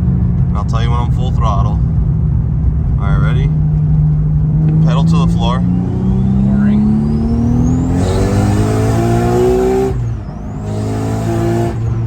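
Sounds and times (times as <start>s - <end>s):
car engine at full throttle: 0.0s - 12.0s
turbo whistle: 5.8s - 8.7s.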